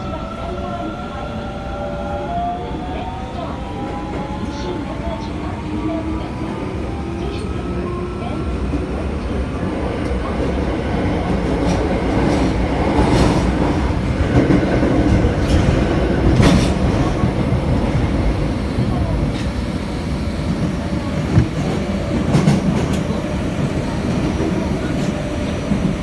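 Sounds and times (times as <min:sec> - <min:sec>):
wheels rumbling on rail: 0:00.0 - 0:26.0
rail joint clacks: 0:11.2 - 0:19.9.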